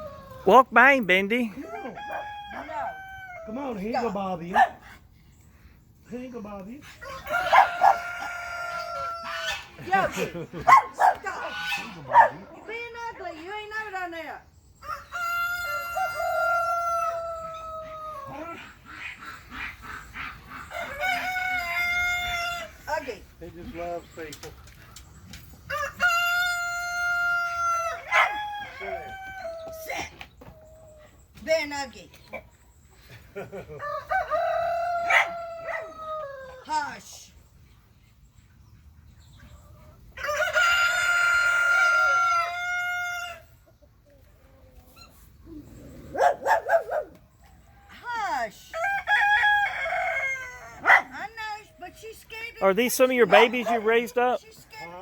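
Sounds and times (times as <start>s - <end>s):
rooster crowing: 1.5s - 3.6s, 7.0s - 9.7s, 14.8s - 18.3s, 20.7s - 22.7s, 25.7s - 29.7s, 33.8s - 36.6s, 40.2s - 43.5s, 48.8s - 51.0s.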